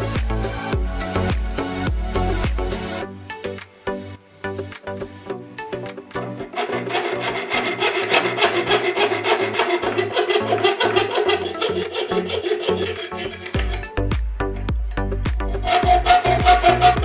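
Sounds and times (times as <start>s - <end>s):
background music with bass line: 0.0s - 7.8s, 12.8s - 17.0s
hand file rasping: 6.2s - 14.1s, 15.0s - 17.0s.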